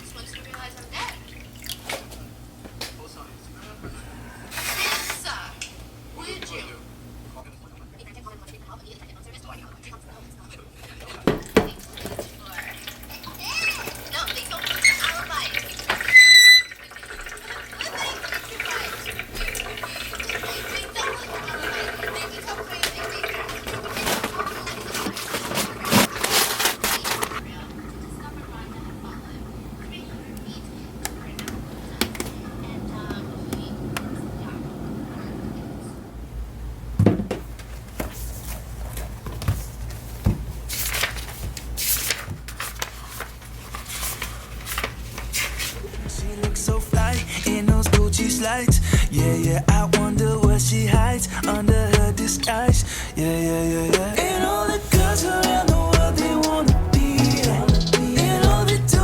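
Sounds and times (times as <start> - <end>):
water running and splashing: 0.0 - 2.1, 11.4 - 26.2
electronic beep: 16.1 - 16.8.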